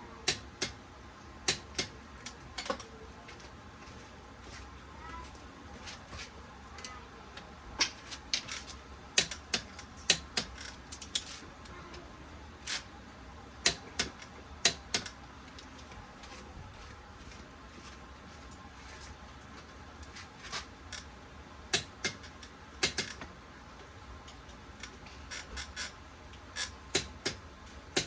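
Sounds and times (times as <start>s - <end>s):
metallic clicks of hand tools: 8.3s - 11.4s, 13.6s - 15.7s, 21.8s - 23.3s, 26.6s - 27.4s.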